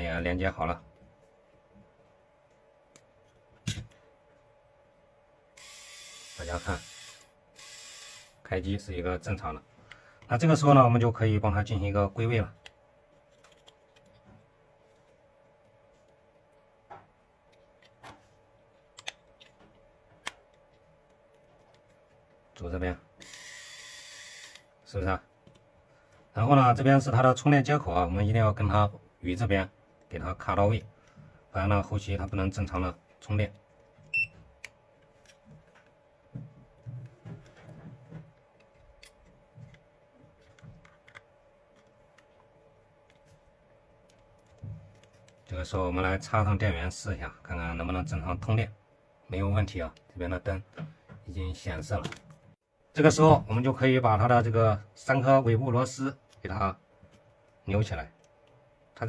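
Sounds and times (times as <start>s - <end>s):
faint steady hum: 0.0s - 59.0s
plastic parts clicking: 40.4s - 42.3s.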